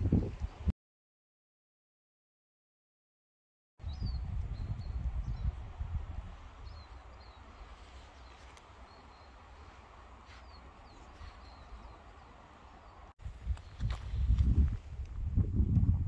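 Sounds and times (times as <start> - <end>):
small birds chirping: 3.8 - 14.4.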